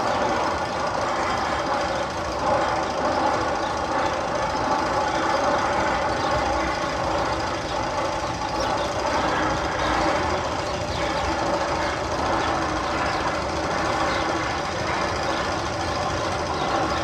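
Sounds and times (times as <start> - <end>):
mechanical rattling and rumbling: 0.0 - 17.0.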